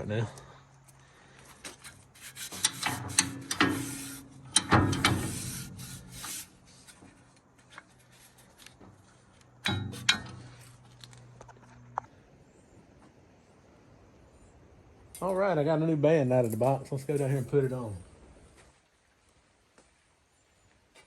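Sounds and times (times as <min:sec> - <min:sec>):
band blade rubbing and scraping: 0:01.7 - 0:07.1, 0:09.7 - 0:10.7.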